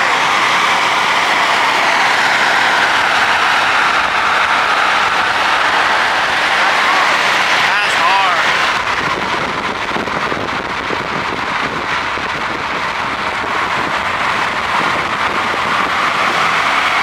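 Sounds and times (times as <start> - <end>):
tyre and wind noise: 8.4 - 17.0.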